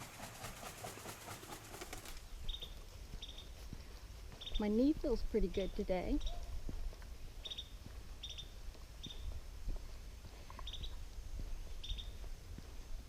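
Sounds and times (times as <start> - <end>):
wind rumble on microphone: 4.6 - 13.0
bird chirping high: 11.7 - 12.2.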